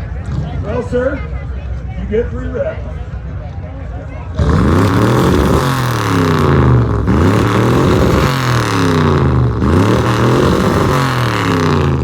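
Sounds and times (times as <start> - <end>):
car engine revving: 4.3 - 12.0.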